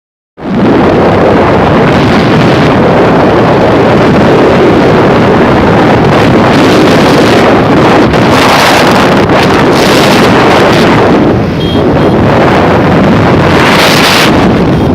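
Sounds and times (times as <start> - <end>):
wind buffeting microphone: 0.4 - 14.9.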